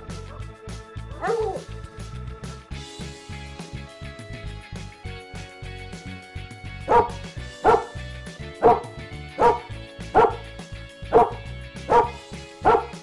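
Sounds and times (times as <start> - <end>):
background music: 0.0 - 13.0
dog barking: 1.1 - 1.7, 6.9 - 8.0, 8.6 - 10.5, 11.1 - 13.0.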